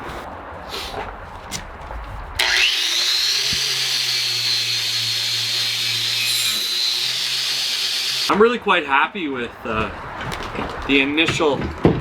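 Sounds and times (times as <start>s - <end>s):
angle grinder whining: 2.4s - 8.3s.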